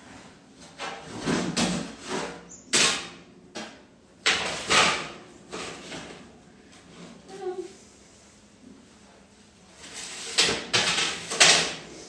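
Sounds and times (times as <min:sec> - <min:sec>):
metal baking trays clattering: 0:09.9 - 0:11.9.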